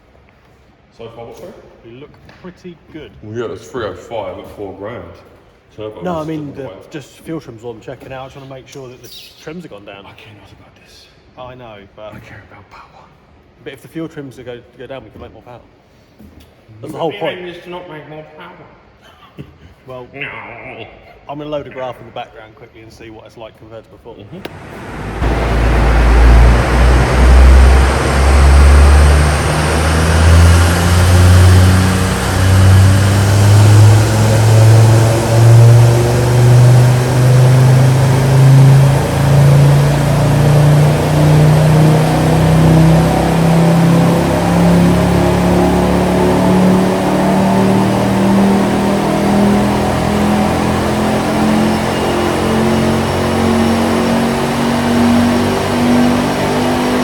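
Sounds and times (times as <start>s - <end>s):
turbocharged car engine revving: 24.3s - 57.0s.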